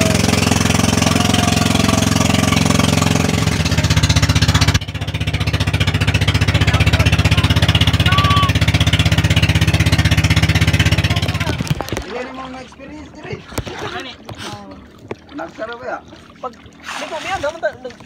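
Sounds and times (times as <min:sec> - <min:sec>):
small engine chugging: 0:00.0 - 0:11.7.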